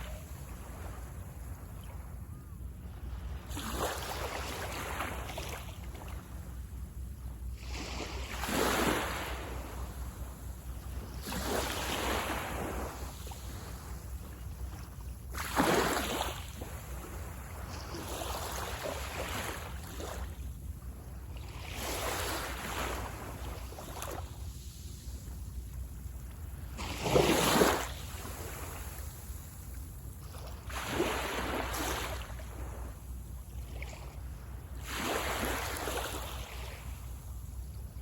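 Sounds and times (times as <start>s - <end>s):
sea waves breaking on beach: 7.6s - 10.0s, 10.8s - 14.0s, 15.3s - 20.3s, 21.4s - 25.0s, 26.7s - 29.3s, 30.3s - 33.0s, 34.8s - 37.2s.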